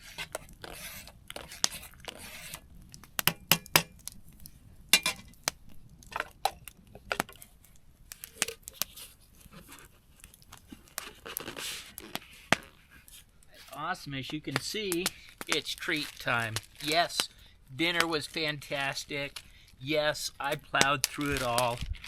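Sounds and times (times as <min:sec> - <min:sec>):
packaging crinkling and tearing: 0:07.3 - 0:13.8, 0:14.5 - 0:22.0.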